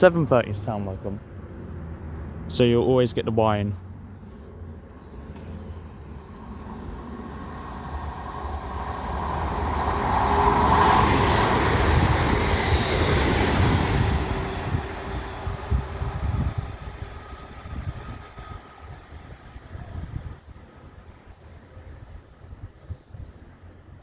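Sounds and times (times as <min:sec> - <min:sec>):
train wheel and rail noise: 0:04.0 - 0:24.0.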